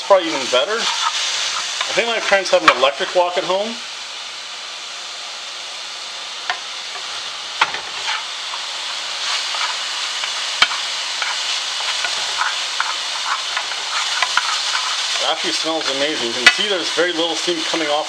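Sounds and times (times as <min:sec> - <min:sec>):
vegetables sizzling in a skillet: 0:00.0 - 0:18.0
wooden spoon stirring: 0:00.8 - 0:02.4, 0:08.0 - 0:16.7.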